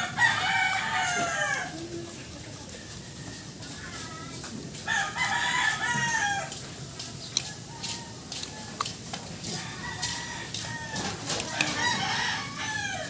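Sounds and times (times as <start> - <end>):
rooster crowing: 0.0 - 2.0, 4.8 - 6.6, 7.4 - 8.8, 9.4 - 13.0.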